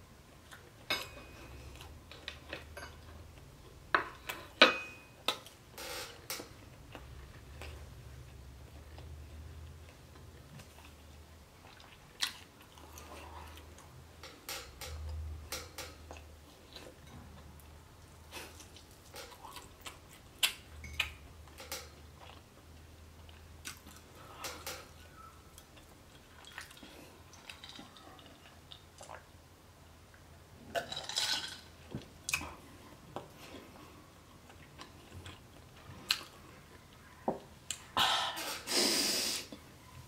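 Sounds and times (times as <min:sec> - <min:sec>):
person chewing crunchy food: 0:06.4 - 0:13.9, 0:16.0 - 0:29.3, 0:31.8 - 0:37.1.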